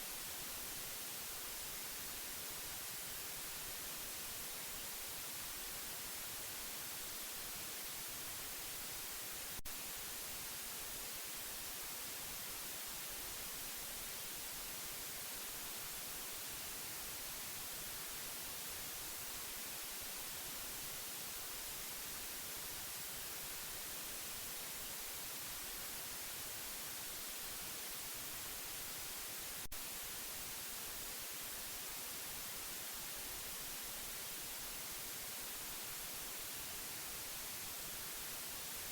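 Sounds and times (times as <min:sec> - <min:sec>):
steady white noise hiss: 0:00.0 - 0:38.9.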